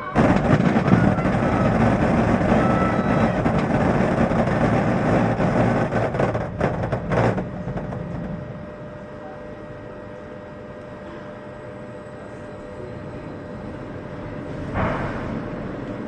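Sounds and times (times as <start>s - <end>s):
loud rumbling roar: 0.0s - 8.6s.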